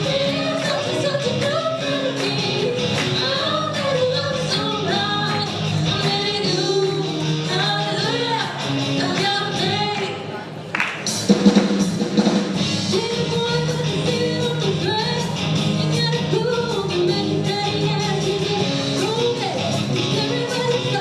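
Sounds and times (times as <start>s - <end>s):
rock band playing: 0.0s - 21.0s
person singing: 12.9s - 21.0s.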